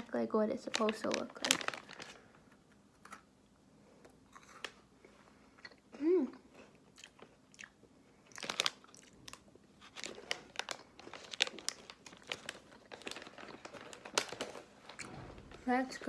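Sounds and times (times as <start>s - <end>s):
biscuit crunching: 6.4s - 15.6s.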